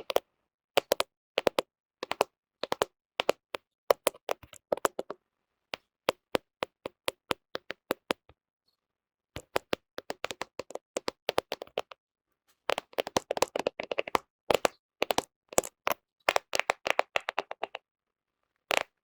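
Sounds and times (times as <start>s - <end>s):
fingernails tapping on phone: 0.8s - 5.2s, 9.4s - 11.9s, 12.7s - 17.8s.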